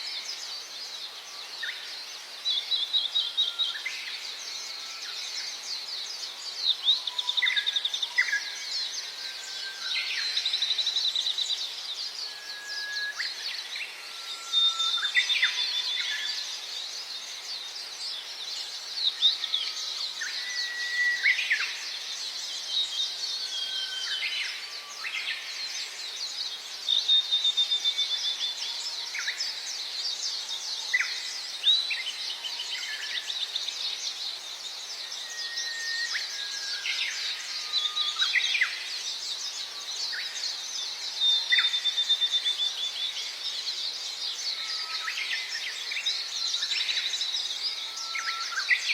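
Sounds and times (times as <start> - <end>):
many birds chirping: 0.0 - 48.9
whistled bird notes: 18.0 - 34.0, 34.9 - 48.9.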